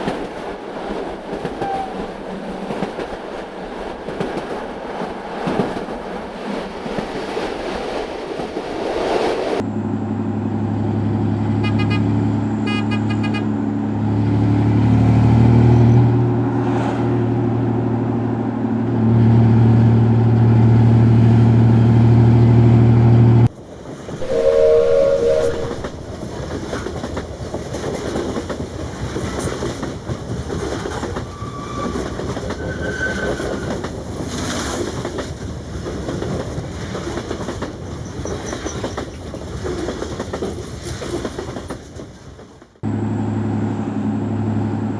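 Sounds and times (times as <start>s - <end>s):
train rumbling on rails: 0.0s - 44.9s
low train horn chord: 24.2s - 26.3s
short horn toot: 24.2s - 26.3s.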